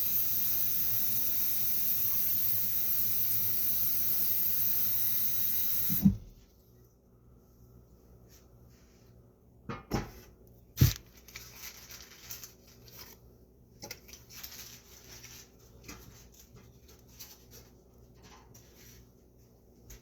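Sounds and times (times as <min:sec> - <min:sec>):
scraping and rustling: 0:14.1 - 0:19.0.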